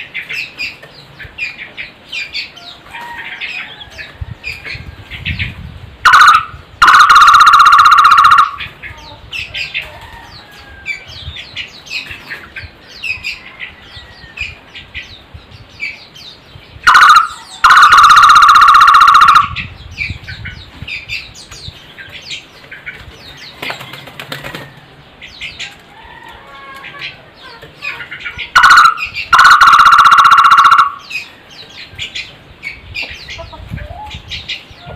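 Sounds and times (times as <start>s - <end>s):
barbet call with pulsed trill: 6.0s - 8.6s, 16.9s - 19.6s, 28.6s - 31.0s.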